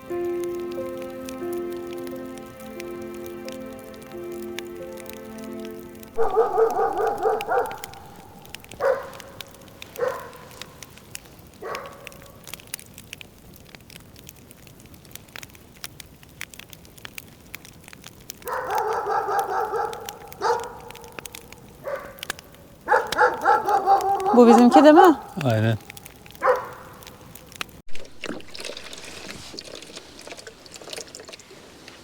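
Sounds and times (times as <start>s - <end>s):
dog barking: 6.2s - 10.8s, 11.6s - 12.4s, 18.4s - 27.0s.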